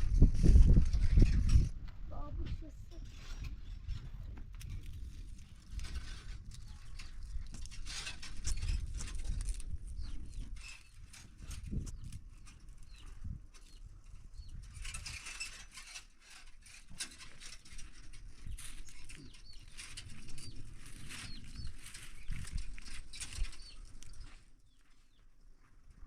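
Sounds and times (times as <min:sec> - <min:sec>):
rustling: 0:14.6 - 0:24.9
birds chirping: 0:18.4 - 0:25.3.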